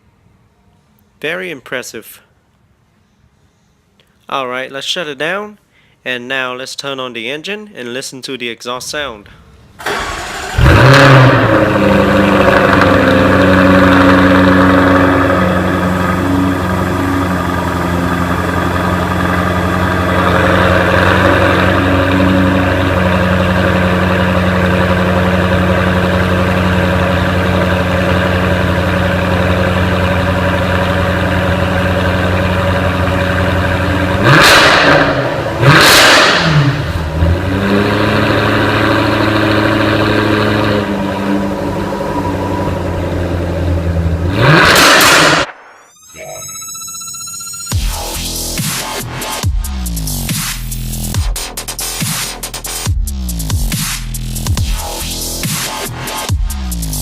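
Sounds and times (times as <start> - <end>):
car engine idling: 9.8 - 45.5
engine revving: 9.8 - 45.6.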